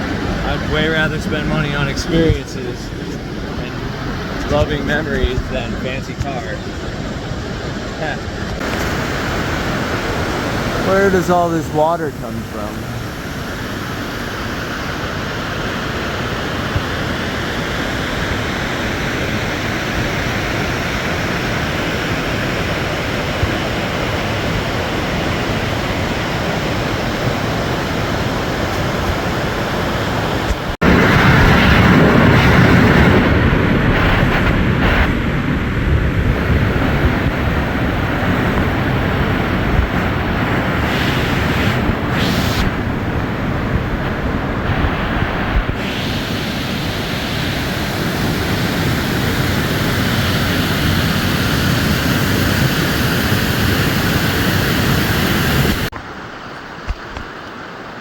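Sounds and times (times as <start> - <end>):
waterfall rushing: 0.0 - 15.0, 37.3 - 55.9.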